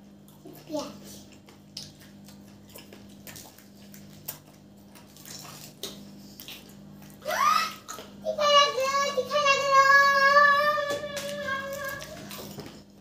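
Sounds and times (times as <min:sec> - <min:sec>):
people chewing and crunching: 0:00.0 - 0:13.0
steady low hum: 0:00.0 - 0:13.0
wet mouth clicks: 0:00.4 - 0:07.2.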